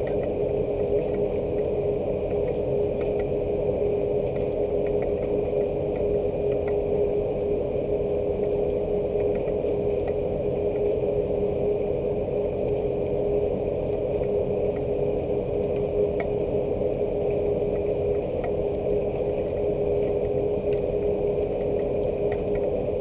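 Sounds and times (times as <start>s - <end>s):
drip ticks: 0.0s - 3.4s, 4.2s - 7.1s, 8.1s - 11.0s, 13.9s - 16.5s, 17.2s - 22.9s
machine hum: 0.0s - 23.0s
steady rain: 0.0s - 23.0s.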